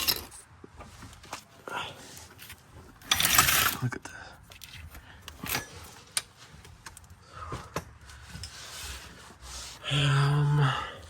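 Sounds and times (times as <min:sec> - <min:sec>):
metal clicks and scraping: 0:00.0 - 0:01.4, 0:02.2 - 0:03.9, 0:04.5 - 0:08.6.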